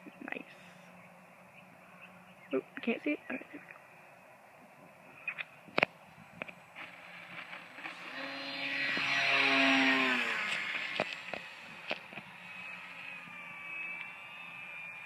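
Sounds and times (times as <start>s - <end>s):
model plane motor whine: 4.8s - 15.0s
faint clicks: 13.9s - 14.2s.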